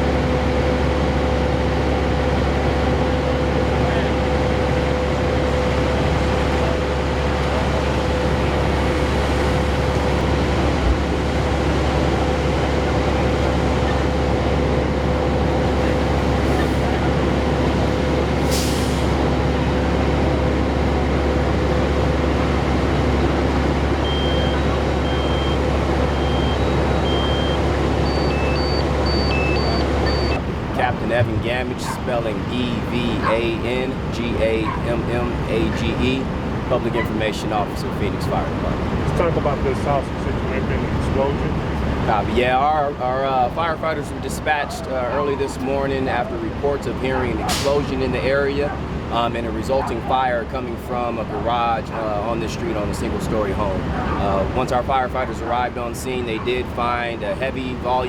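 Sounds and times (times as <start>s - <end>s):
truck engine idling: 0.0s - 58.0s
short high electronic beeps: 24.0s - 30.4s.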